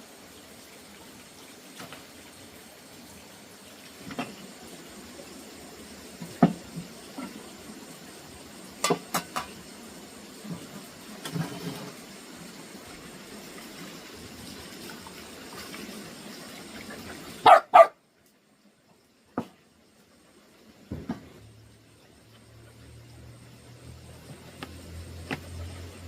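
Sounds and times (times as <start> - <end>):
background hiss: 0.0 - 26.0.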